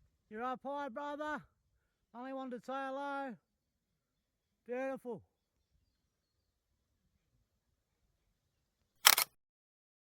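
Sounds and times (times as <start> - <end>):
camera shutter clicks: 9.0 - 9.4.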